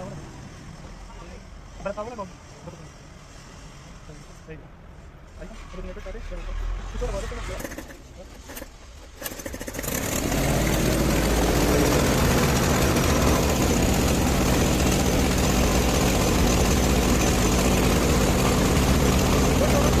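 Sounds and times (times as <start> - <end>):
diesel truck engine starting: 8.5 - 20.0
diesel truck engine idling: 10.8 - 20.0.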